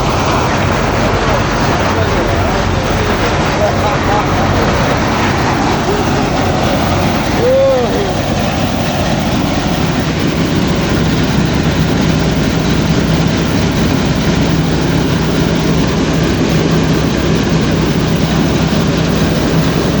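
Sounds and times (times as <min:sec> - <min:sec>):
heavy farm machinery engine: 0:00.0 - 0:20.0.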